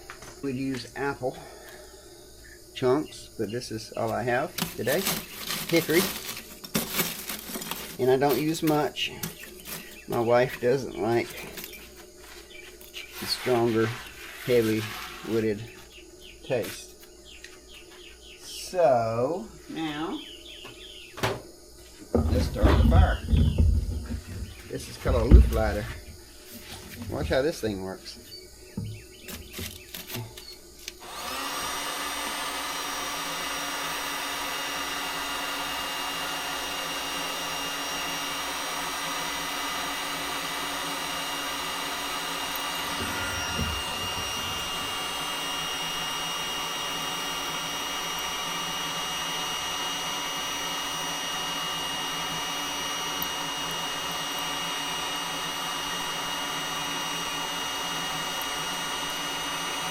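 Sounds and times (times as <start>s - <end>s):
charcoal starter fan blowing: 2.4s - 16.9s, 22.0s - 59.9s
handling knocks: 22.1s - 26.2s.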